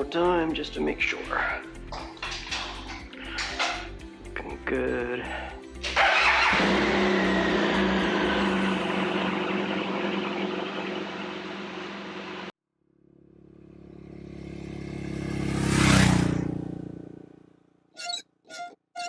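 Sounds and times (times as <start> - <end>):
music: 0.0 - 9.7
motorcycle engine running: 1.4 - 4.1, 5.8 - 12.5, 13.1 - 17.5.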